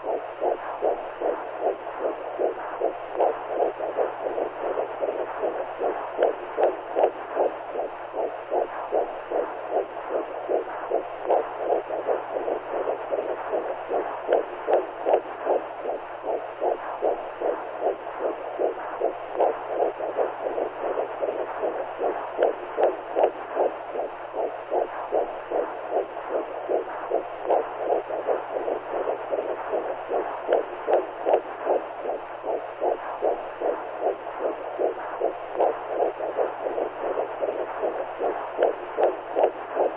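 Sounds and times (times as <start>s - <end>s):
steady low hum: 0.0s - 39.9s
whooshing heartbeat pulse: 0.0s - 39.9s.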